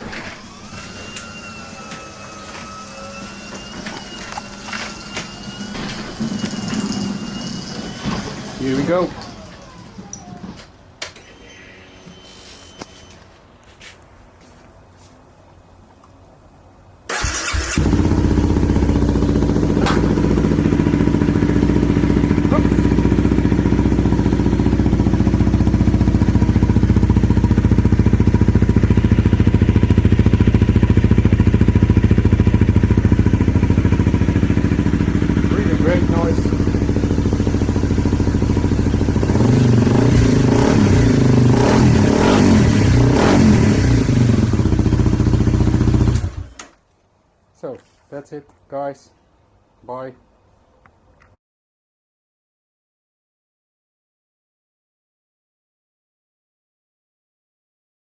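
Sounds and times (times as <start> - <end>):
electric starter cranking: 17.1 - 22.2
motorcycle engine idling: 17.2 - 41.5, 43.6 - 46.4.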